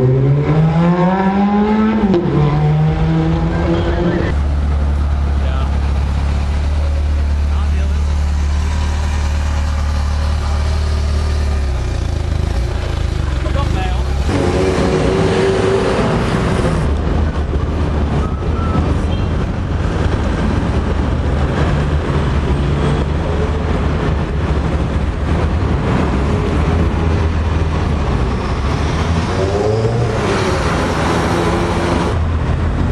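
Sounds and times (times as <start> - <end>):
street traffic: 0.0 - 32.9
car engine running: 4.3 - 14.4.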